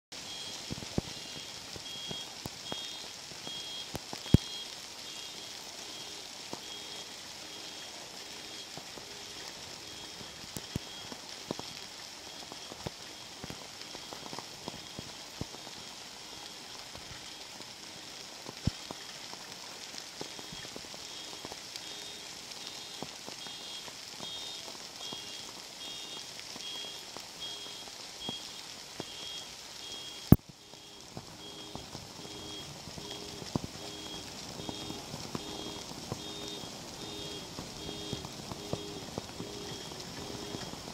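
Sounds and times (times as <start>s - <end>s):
rain and hail hissing: 0.1s - 40.9s
hailstones striking: 18.6s - 40.9s.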